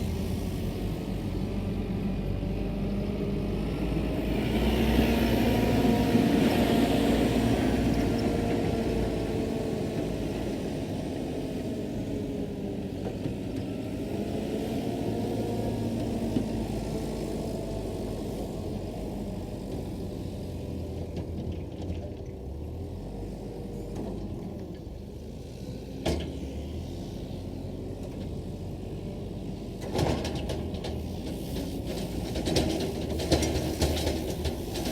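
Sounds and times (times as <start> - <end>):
vehicle engine rumbling: 0.0 - 34.9.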